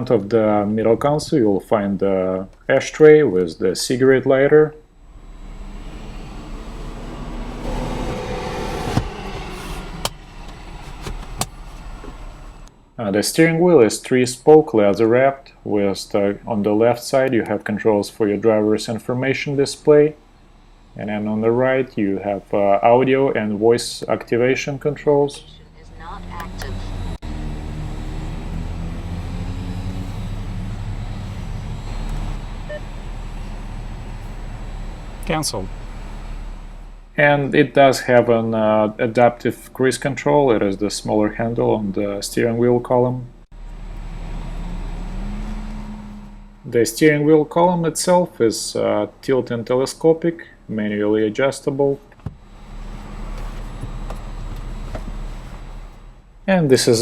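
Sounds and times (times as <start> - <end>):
car cabin hum: 0.0 - 47.6, 52.0 - 57.0.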